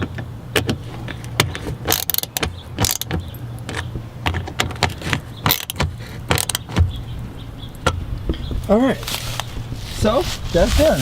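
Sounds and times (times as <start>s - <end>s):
hand tool driving screws: 1.4s - 6.7s.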